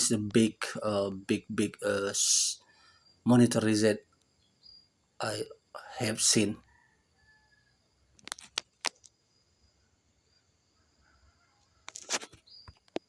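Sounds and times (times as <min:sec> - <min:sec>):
high insect drone: 0:00.0 - 0:06.9.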